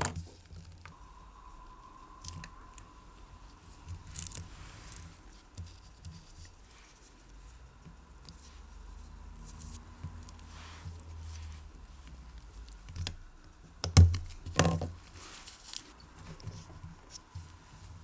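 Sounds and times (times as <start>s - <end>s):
small parts clicking and tapping: 3.5s - 7.0s, 9.4s - 13.2s, 13.8s - 18.0s.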